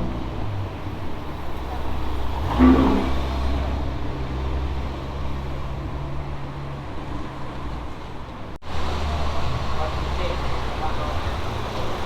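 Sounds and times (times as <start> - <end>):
car engine running: 0.0 - 4.1.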